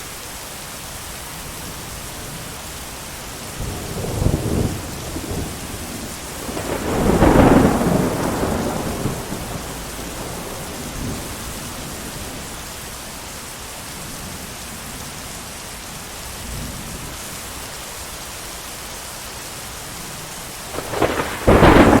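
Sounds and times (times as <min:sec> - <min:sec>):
heavy rain: 0:00.0 - 0:22.0
rolling thunder: 0:03.5 - 0:12.6, 0:20.7 - 0:22.0.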